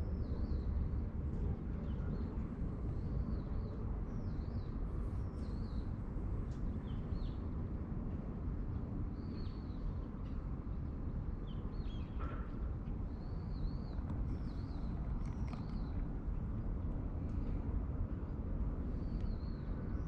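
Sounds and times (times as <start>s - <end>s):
small birds chirping: 13.2s - 16.0s.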